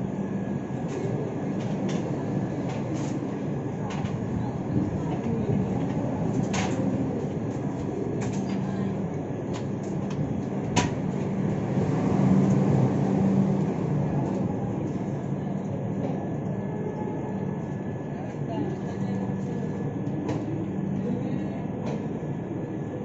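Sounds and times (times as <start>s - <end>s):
train wheels rumbling on rail: 0.2s - 16.5s.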